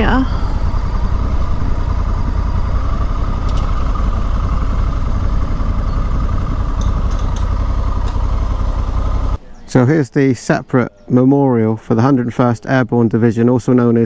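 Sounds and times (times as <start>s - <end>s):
motorcycle engine rumbling: 0.0s - 9.8s.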